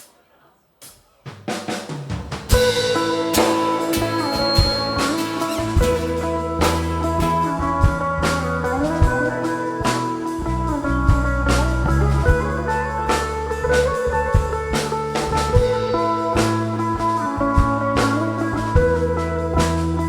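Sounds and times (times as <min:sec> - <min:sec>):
cymbal hits: 0:02.3 - 0:07.5
rock band playing: 0:02.3 - 0:20.0.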